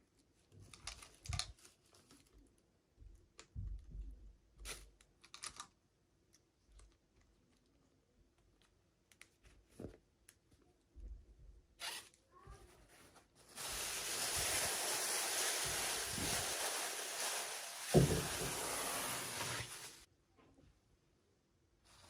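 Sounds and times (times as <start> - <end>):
packaging tearing and rustling: 13.4 - 20.1.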